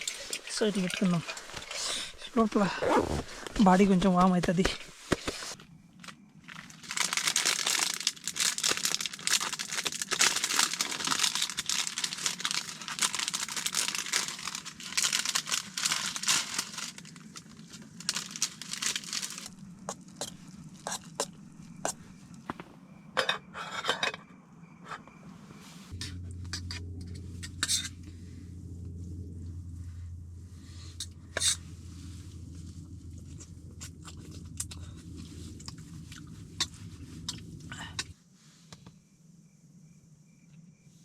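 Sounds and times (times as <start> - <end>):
sleeping bag rustling: 0.0 - 3.9, 6.4 - 20.9
low steady hum: 0.0 - 38.2.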